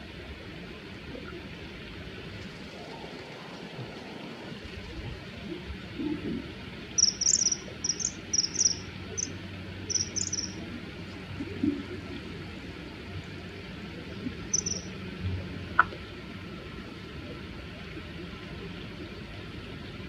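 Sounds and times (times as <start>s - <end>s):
kingfisher short high calls: 7.0s - 9.3s, 9.9s - 10.6s, 14.5s - 14.9s.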